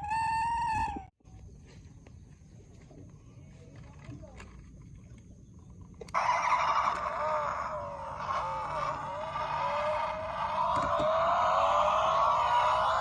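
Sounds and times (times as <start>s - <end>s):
toy electronic vehicle sound: 6.1s - 13.0s.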